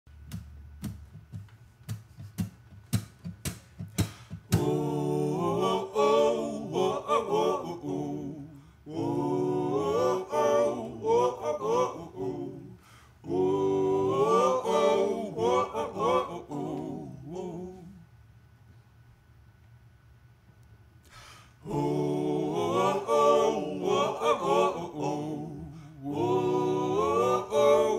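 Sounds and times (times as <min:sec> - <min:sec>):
voices singing in harmony: 0:04.4 - 0:18.1, 0:21.6 - 0:27.9.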